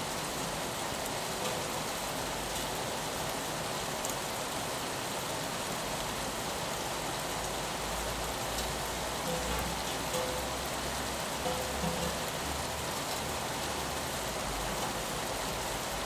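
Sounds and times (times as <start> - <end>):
rain on window glass: 0.0 - 16.0.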